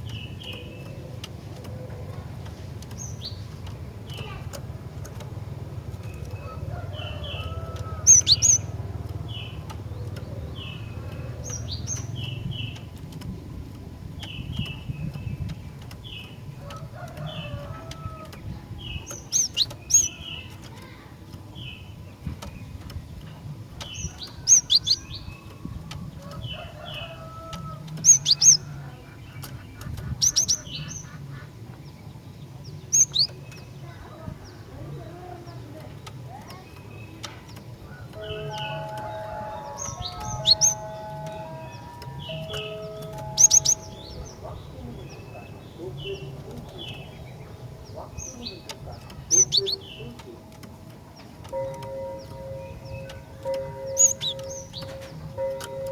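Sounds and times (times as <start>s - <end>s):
steady low hum: 0.0s - 55.9s
sharp high bird calls: 7.1s - 8.8s, 27.0s - 31.5s, 37.9s - 50.4s, 51.5s - 55.8s
tit chirping: 39.6s - 55.5s.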